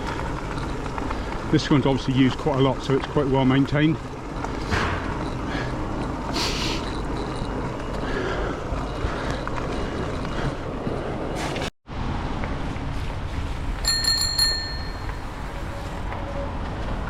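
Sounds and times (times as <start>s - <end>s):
wind and tyres rumbling: 0.0s - 17.0s
bicycle bell ringing: 13.8s - 15.6s.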